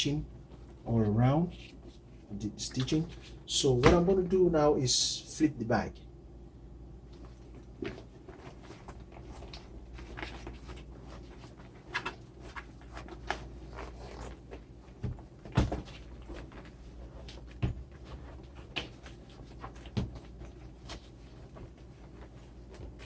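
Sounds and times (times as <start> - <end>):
leather bag creasing and rustling: 7.2 - 23.0.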